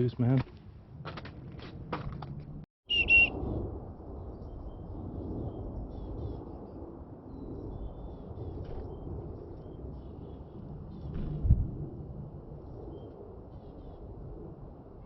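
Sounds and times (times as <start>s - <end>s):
bird whistled note: 2.9s - 3.3s.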